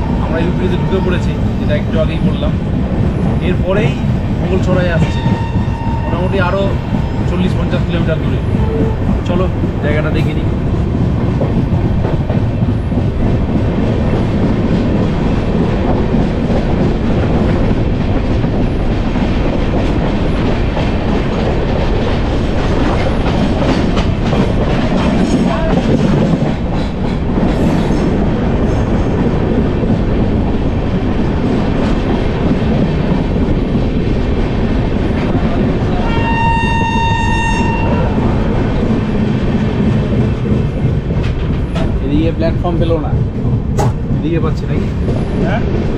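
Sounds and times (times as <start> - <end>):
train rumbling on rails: 0.0 - 45.9
train horn: 5.0 - 7.2, 8.4 - 9.2, 36.0 - 38.4.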